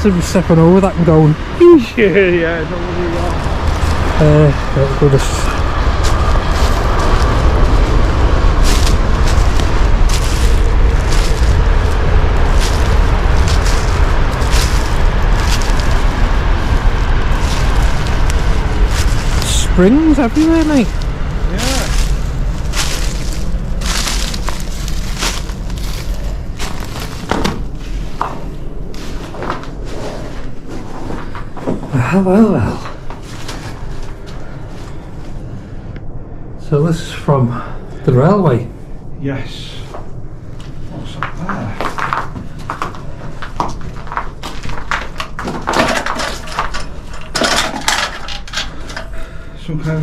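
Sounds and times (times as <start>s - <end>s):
wind on microphone: 0.9s - 32.0s
footsteps crunching on debris: 5.5s - 31.9s, 32.8s - 34.7s, 40.6s - 49.0s
scuffing and rustling: 8.6s - 31.7s.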